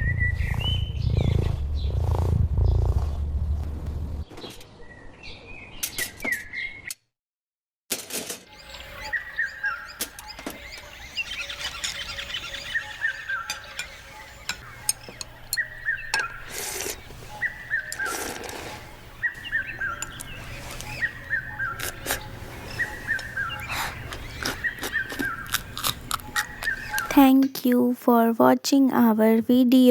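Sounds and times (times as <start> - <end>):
bird singing falling notes: 3.5 - 7.0, 8.5 - 27.2.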